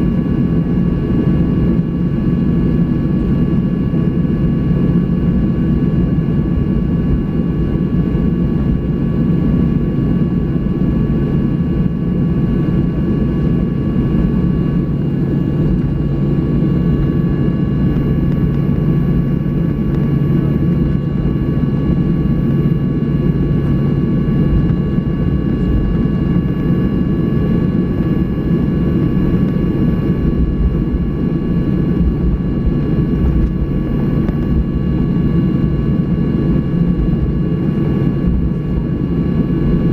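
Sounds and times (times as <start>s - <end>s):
jet engines low rumble: 0.0s - 39.9s
cabin air rumble: 12.2s - 39.9s.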